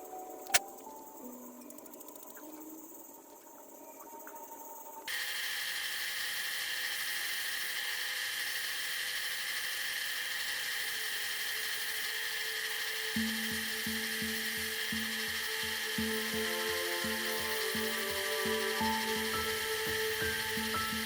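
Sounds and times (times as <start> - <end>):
power tool whirring: 5.1 - 21.0.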